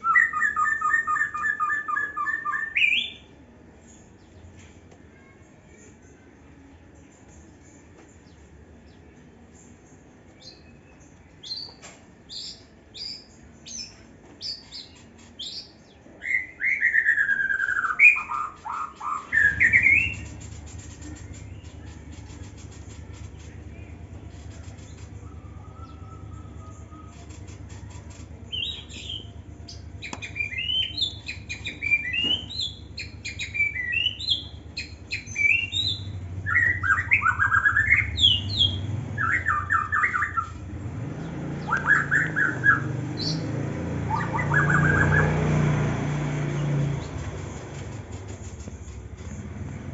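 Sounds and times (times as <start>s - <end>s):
bird chirping and whistling: 0.0s - 3.3s, 11.4s - 23.2s, 24.4s - 45.4s.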